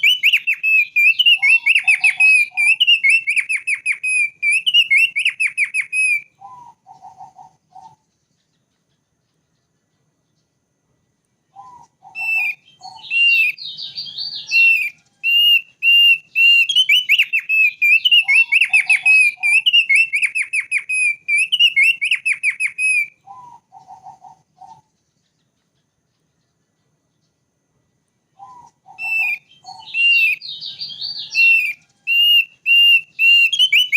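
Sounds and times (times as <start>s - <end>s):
rapid whistled bird notes: 0.0s - 10.5s, 11.4s - 27.3s, 28.3s - 33.9s
lower bird notes: 0.0s - 33.9s.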